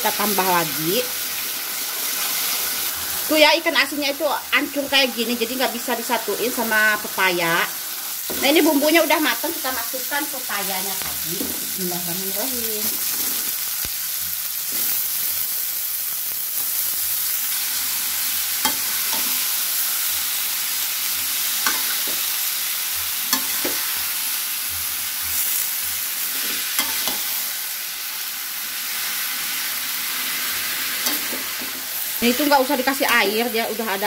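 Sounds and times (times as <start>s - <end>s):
food sizzling in a wok: 0.0s - 34.0s
utensils clinking and scraping pan: 26.3s - 27.4s, 31.0s - 31.9s.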